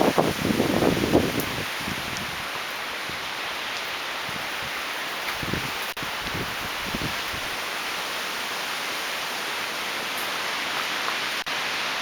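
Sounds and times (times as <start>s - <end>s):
wind gusts buffeting microphone: 0.0s - 3.3s, 4.2s - 7.6s
strong wind through trees: 0.0s - 12.0s.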